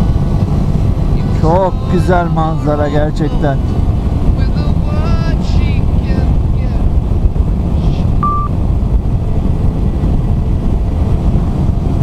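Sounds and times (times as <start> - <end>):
wind and road noise: 0.0 - 12.0
short single-pitched beep: 8.2 - 8.6.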